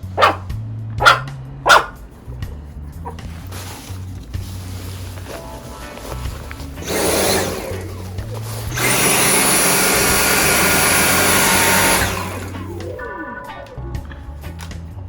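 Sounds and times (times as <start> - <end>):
stick vacuum running: 4.8 - 13.0.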